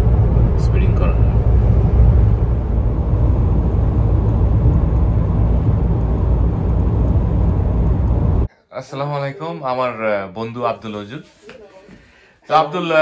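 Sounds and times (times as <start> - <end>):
car cruising road and engine noise: 0.0 - 8.5.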